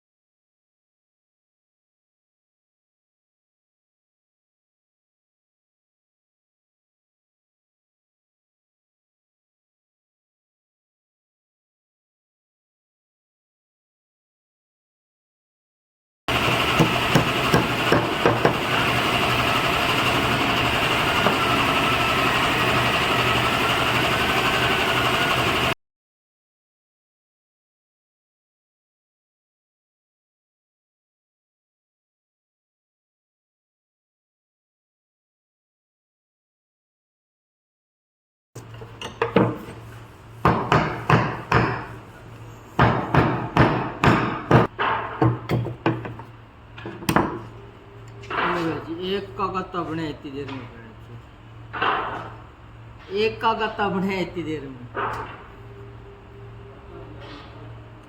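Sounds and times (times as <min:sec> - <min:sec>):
hammer striking wood: 0:16.3 - 0:19.6, 0:40.4 - 0:42.0, 0:42.8 - 0:46.2
woodworking machine running: 0:16.3 - 0:25.8
sharp knocks: 0:16.7 - 0:18.6.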